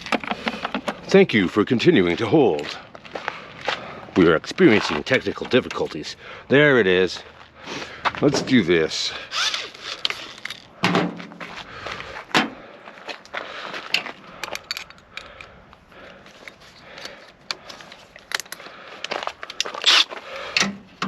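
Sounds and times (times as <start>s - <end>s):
tools and metal parts clattering: 0.0s - 1.2s, 9.3s - 11.4s, 13.9s - 21.0s
power drill whirring: 9.3s - 10.6s, 19.8s - 20.1s.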